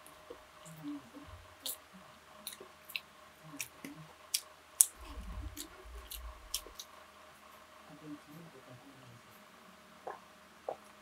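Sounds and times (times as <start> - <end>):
wet chewing clicks and smacks: 1.6 - 6.9
low rumble: 5.0 - 8.2.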